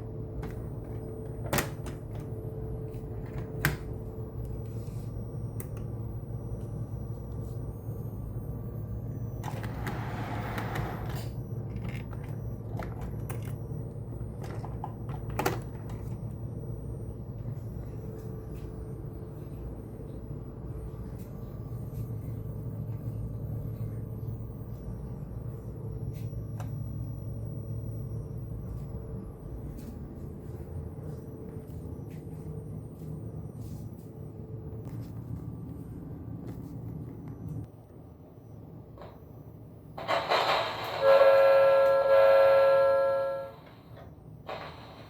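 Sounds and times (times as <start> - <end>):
model train rumbling: 40.0 - 43.8.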